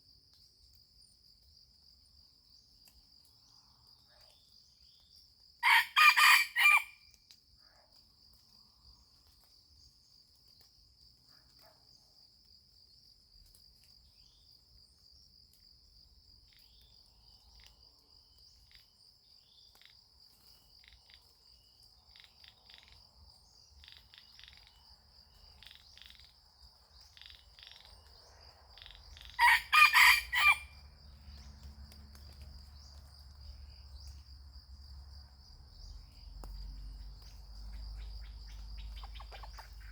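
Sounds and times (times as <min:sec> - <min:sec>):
rooster crowing: 0:05.6 - 0:07.0, 0:29.3 - 0:30.8.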